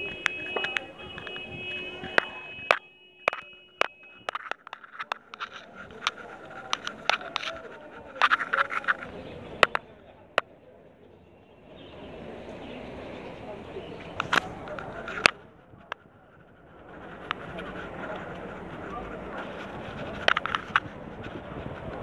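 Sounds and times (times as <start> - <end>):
street hum: 0.0 - 22.0
small birds chirping: 10.9 - 15.2.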